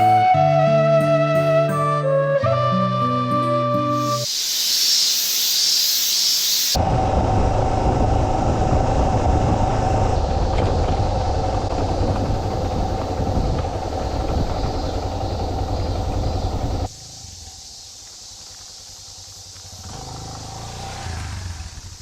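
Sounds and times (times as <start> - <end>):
wind rumble on microphone: 6.8 - 16.9
motorcycle engine cruising: 6.8 - 22.0.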